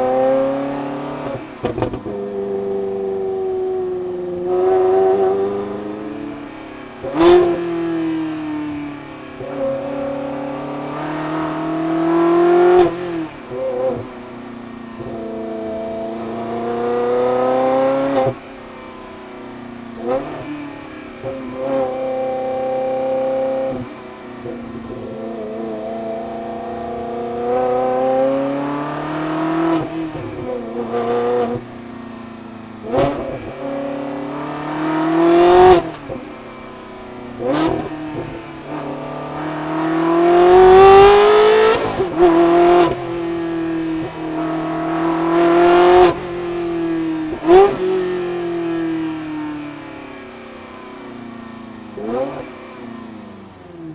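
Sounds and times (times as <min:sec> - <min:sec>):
sports car engine revving: 0:00.0 - 0:53.9.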